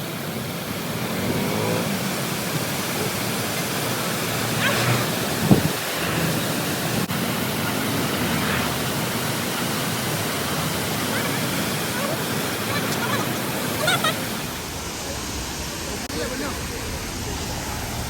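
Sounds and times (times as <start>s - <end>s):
waterfall rushing: 0.0s - 18.0s
short thump: 5.4s - 5.7s
faint voices: 7.1s - 18.0s.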